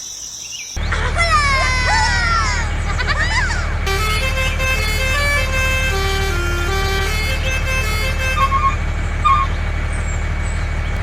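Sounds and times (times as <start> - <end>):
melodic tune of pitched notes: 0.8 - 9.5
low engine rumble: 0.8 - 11.0.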